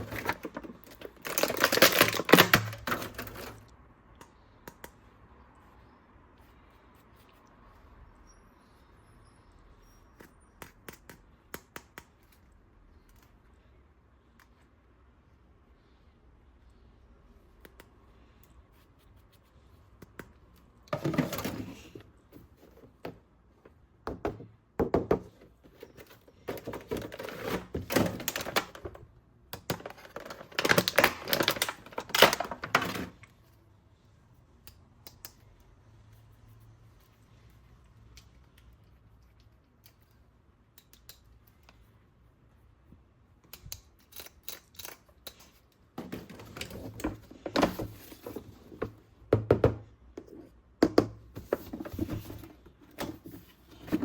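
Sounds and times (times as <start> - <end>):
packaging rustling and scraping: 0.0 - 3.7, 20.9 - 23.0, 25.5 - 29.0, 29.7 - 33.3, 46.0 - 49.0, 51.3 - 54.0.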